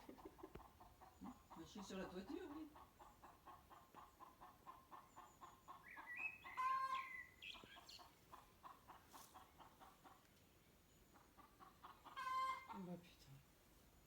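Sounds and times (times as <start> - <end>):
chicken clucking: 0.0 - 10.3, 11.1 - 13.0
chicken squawking: 6.5 - 7.1, 11.9 - 12.8.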